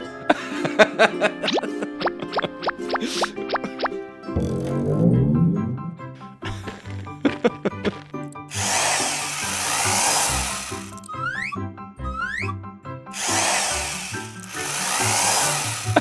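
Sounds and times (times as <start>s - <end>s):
cartoon background music: 0.0s - 16.0s
power tool whirring effect: 8.5s - 11.5s, 13.1s - 16.0s
rising whistle slides: 11.0s - 12.6s.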